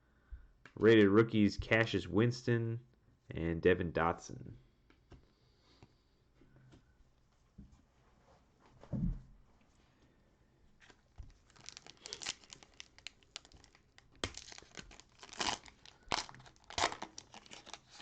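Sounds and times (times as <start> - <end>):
cellophane wrapper tearing and crinkling: 11.3 - 18.0.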